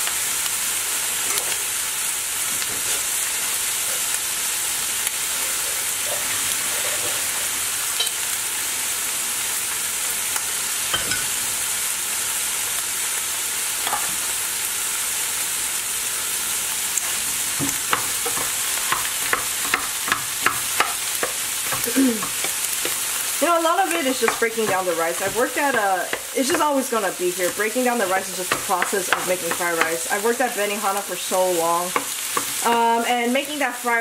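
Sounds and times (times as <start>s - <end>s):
food sizzling in a frying pan: 0.0s - 34.0s
wooden spatula scraping a pan: 17.0s - 30.2s, 31.4s - 32.8s.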